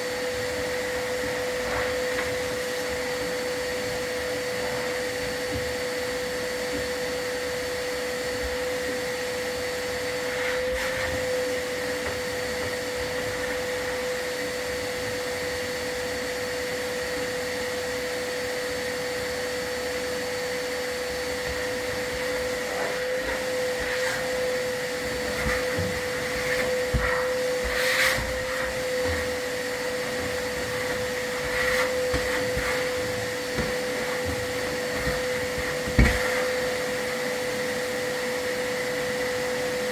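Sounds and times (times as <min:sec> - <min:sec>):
vacuum motor whine: 0:00.0 - 0:39.9
scrapes and knocks: 0:22.1 - 0:36.6.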